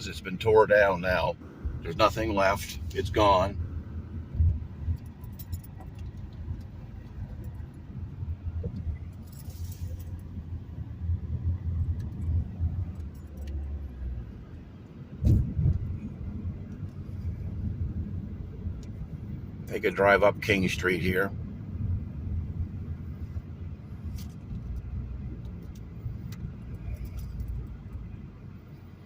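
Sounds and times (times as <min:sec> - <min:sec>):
road and engine rumble: 0:00.0 - 0:29.0
small clicks and rattles: 0:04.4 - 0:07.8, 0:24.1 - 0:28.0.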